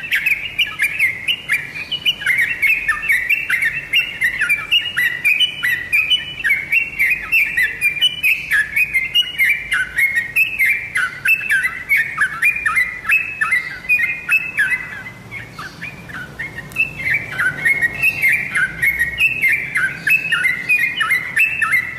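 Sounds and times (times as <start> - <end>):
bird singing chirpy whistles: 0.0 - 21.9.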